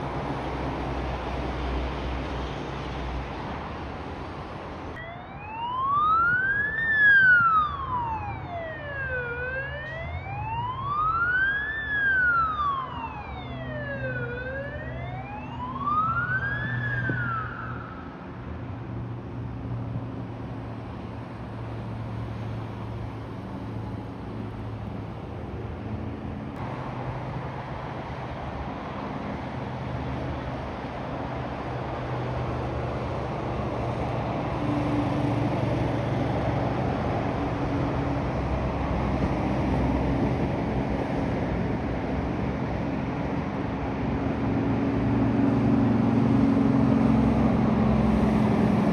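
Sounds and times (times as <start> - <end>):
road traffic drone: 0.0 - 48.9
emergency siren wailing: 5.0 - 18.3.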